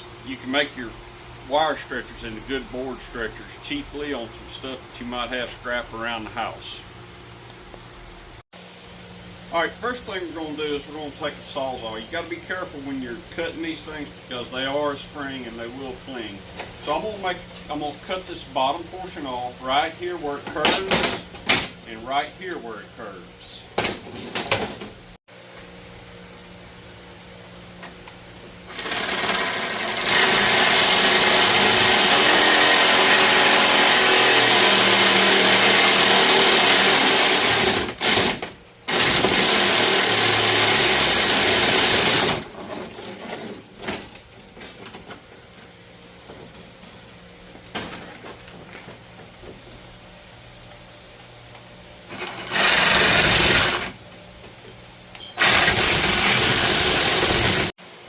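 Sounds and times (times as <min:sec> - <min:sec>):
reciprocating saw cutting wire: 0:28.7 - 0:42.5, 0:52.1 - 0:54.0, 0:55.3 - 0:57.7.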